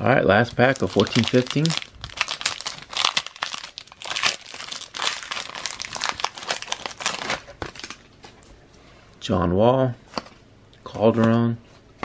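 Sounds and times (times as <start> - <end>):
foil wrapper crinkling and tearing: 0.4 - 8.0.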